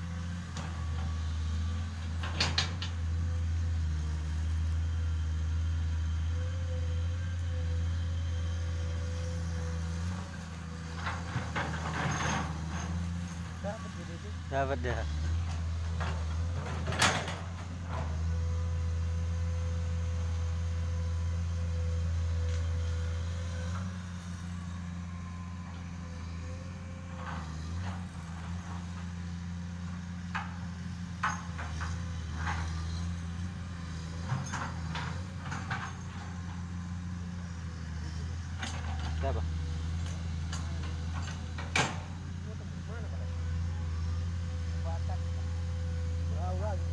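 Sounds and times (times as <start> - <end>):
excavator diesel engine: 0.0 - 46.9
sharp metal clanks and knocks: 31.2 - 32.6.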